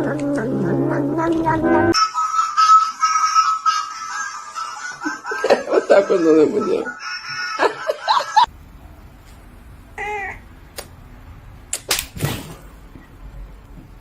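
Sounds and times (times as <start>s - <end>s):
voice with music: 0.0s - 2.2s.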